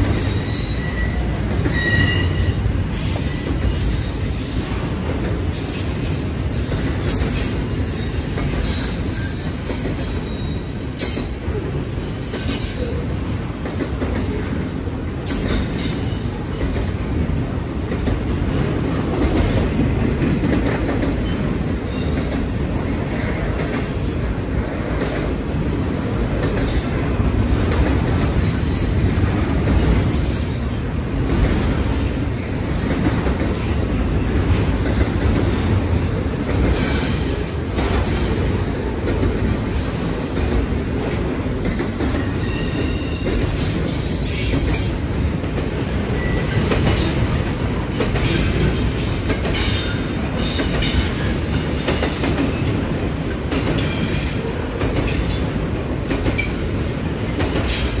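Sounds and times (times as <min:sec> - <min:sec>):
train wheels rumbling on rail: 0:00.0 - 0:58.0
high-pitched wheel squeals: 0:00.2 - 0:02.7.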